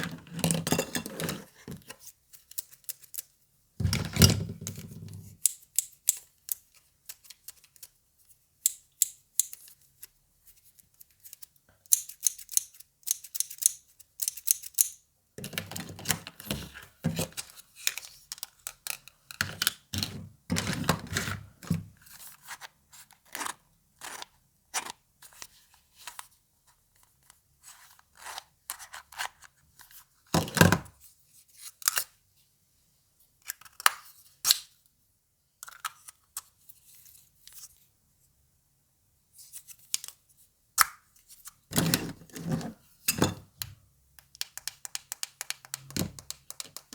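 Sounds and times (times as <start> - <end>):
small plastic pieces clicking: 11.3 - 15.7.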